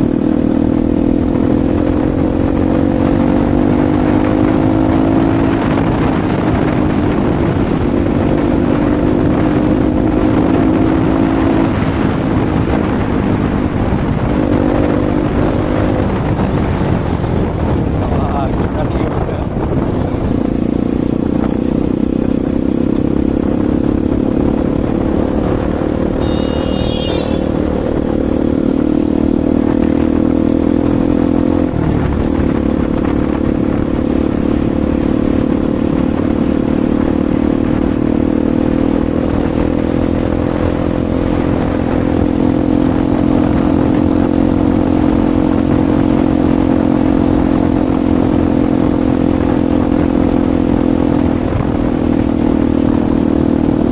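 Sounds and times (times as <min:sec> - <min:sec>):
motorcycle engine running steadily: 0:00.0 - 0:53.9
brief high-pitched tone: 0:26.2 - 0:27.6.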